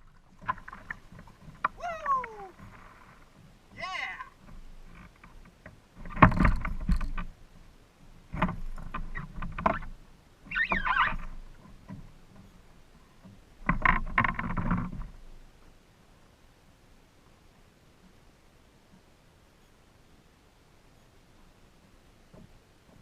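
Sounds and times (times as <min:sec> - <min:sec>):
knocking and rattling on a kayak: 0:00.0 - 0:15.8, 0:21.8 - 0:23.0
short wavering squeak: 0:10.5 - 0:11.3.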